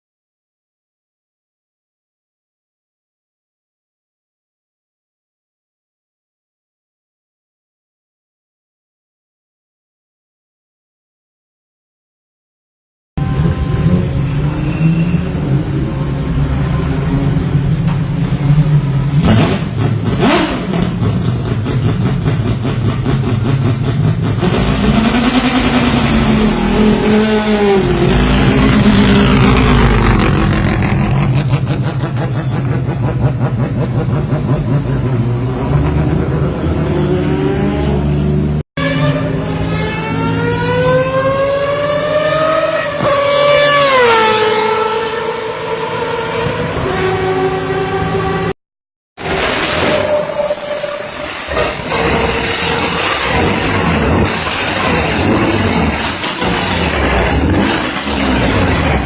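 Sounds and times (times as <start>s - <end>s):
race car rotary engine revving: 17.7s - 48.5s, 49.2s - 59.0s.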